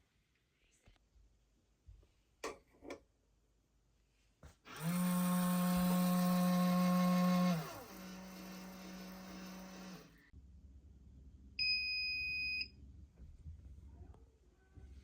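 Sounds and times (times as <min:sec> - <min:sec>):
small electric motor running: 0:04.7 - 0:10.3.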